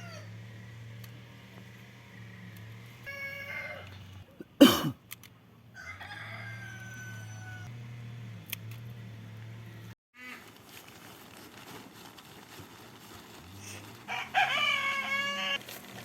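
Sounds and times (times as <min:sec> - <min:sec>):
rooster crowing: 0:00.0 - 0:00.4, 0:03.0 - 0:04.1, 0:05.7 - 0:07.8, 0:14.0 - 0:15.6.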